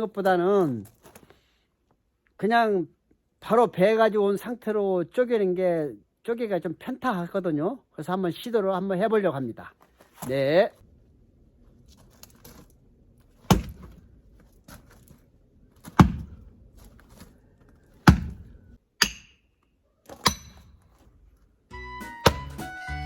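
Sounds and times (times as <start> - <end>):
axe chopping wood: 13.4 - 14.1, 15.8 - 16.5, 17.9 - 19.5, 20.1 - 21.1, 22.2 - 22.7.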